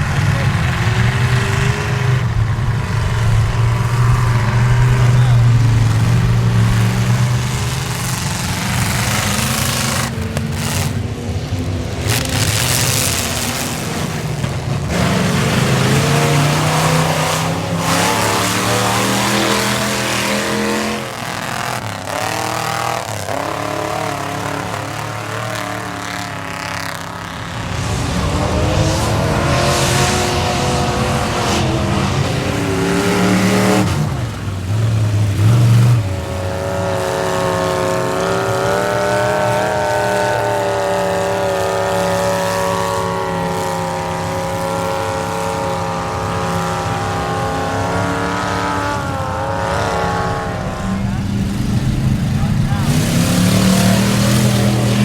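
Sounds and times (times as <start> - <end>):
pickup engine revving hard: 0.0 - 55.0.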